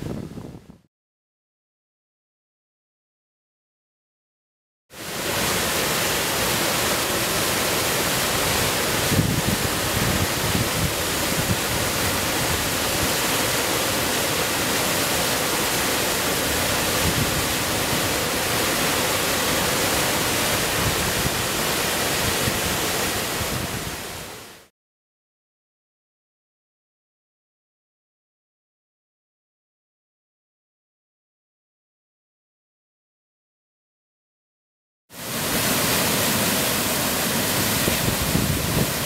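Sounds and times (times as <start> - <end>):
waterfall rushing: 5.0 - 24.7, 35.2 - 39.0.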